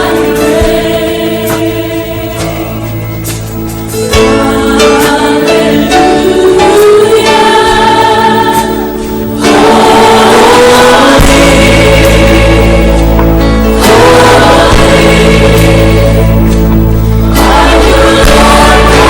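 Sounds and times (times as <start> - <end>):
choir singing held notes: 0.0 - 19.0
instrumental backing: 0.0 - 19.0.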